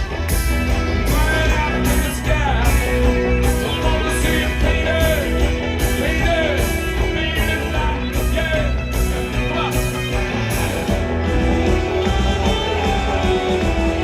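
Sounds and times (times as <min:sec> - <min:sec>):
live rock band playing: 0:00.0 - 0:14.0
person singing: 0:01.1 - 0:09.8.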